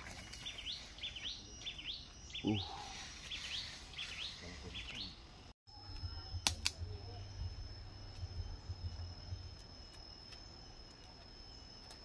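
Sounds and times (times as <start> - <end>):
forest ambience: 0.0 - 12.0
sharp click: 6.4 - 6.8.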